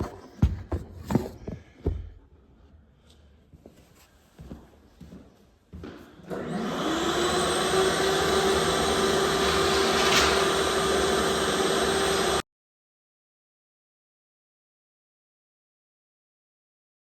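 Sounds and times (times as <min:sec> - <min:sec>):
electric motor whine: 0:06.3 - 0:12.4.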